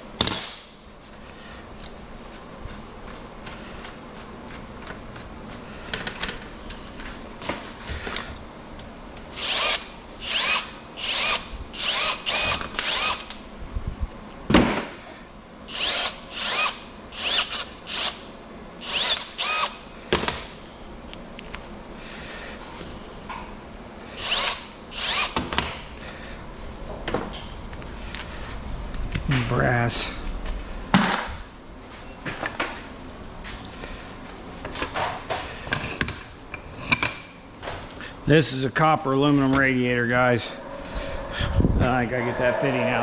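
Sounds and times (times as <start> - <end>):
power drill whining: 9.3 - 13.4, 15.7 - 18.2, 18.8 - 19.8, 24.1 - 25.4.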